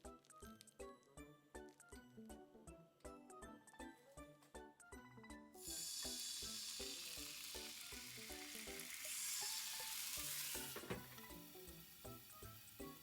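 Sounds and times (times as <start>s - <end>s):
light background music: 0.0s - 13.0s
sizzling in a frying pan: 5.6s - 13.0s.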